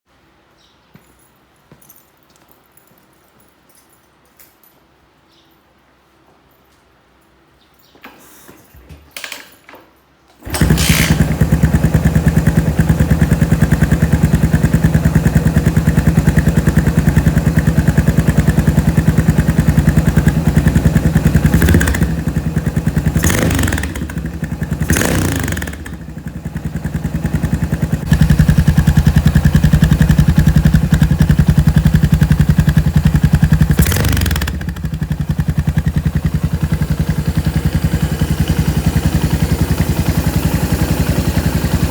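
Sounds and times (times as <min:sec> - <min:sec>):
engine throttle blips: 0:10.4 - 0:41.9
motorcycle engine idling: 0:10.4 - 0:41.9.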